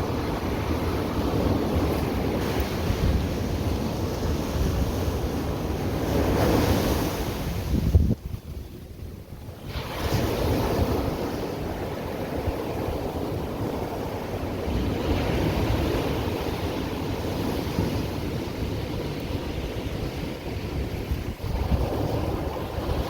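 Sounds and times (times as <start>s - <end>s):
ocean surf roaring: 0.0s - 23.0s
wind on microphone: 0.0s - 23.0s.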